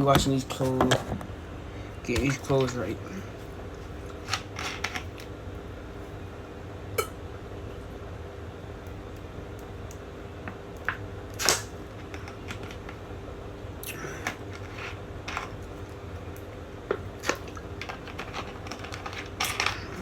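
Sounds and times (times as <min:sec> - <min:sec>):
faint hum: 0:00.0 - 0:20.0
clicks and knocks of objects handled: 0:02.1 - 0:02.9, 0:10.5 - 0:13.0, 0:16.4 - 0:20.0.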